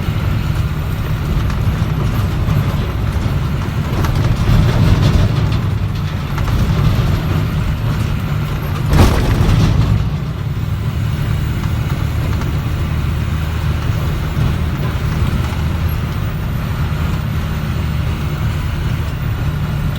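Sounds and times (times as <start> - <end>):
truck engine drone: 0.0 - 19.9
truck knocking over bumps: 0.0 - 19.9.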